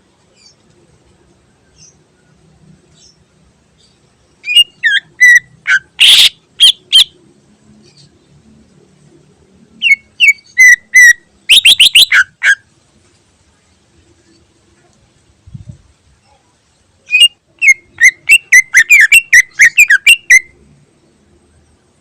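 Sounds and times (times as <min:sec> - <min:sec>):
bird whistled song: 0:04.4 - 0:07.2, 0:09.8 - 0:12.6, 0:17.1 - 0:20.5.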